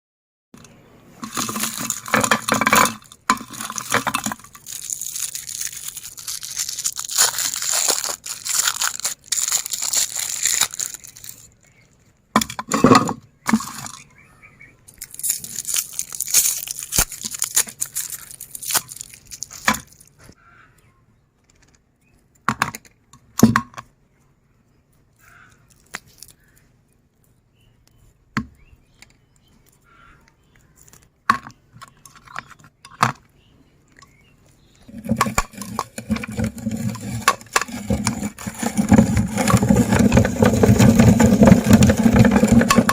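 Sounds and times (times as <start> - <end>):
candy crunching in a grinder: 1.2 - 11.8, 14.9 - 20.2, 34.6 - 42.9.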